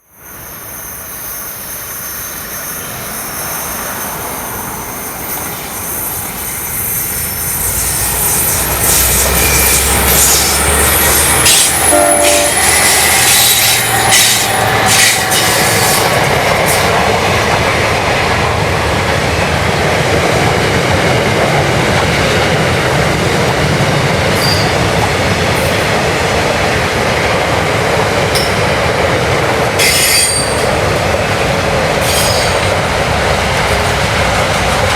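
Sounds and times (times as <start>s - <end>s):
freight train passing: 0.0s - 34.9s
wheel squeal: 0.4s - 16.1s, 24.4s - 24.8s, 29.8s - 30.7s
train horn: 7.7s - 16.0s.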